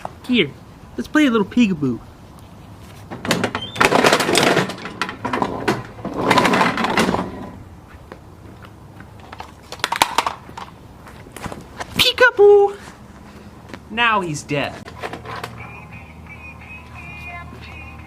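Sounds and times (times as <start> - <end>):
lawnmower blade crunching plastic: 3.8 - 7.6.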